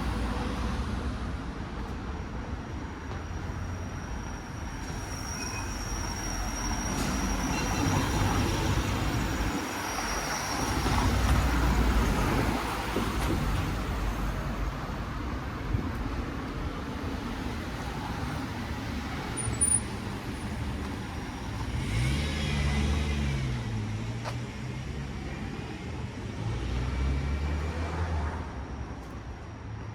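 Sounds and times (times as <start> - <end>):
cars passing: 6.9 - 29.9.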